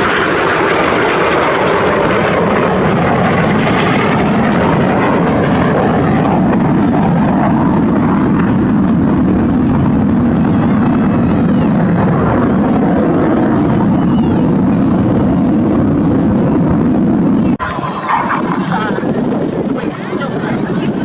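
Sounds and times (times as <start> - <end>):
aircraft flying past: 0.0 - 21.0.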